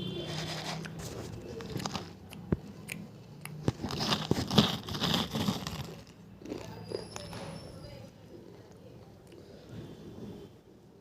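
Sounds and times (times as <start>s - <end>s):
person crunching brittle food: 0.0s - 7.4s.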